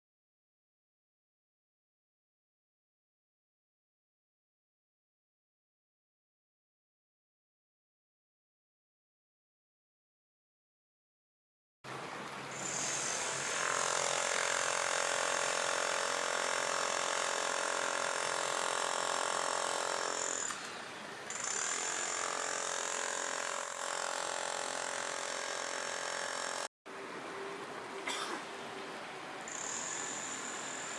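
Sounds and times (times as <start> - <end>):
cicadas buzzing: 29.5 - 30.9.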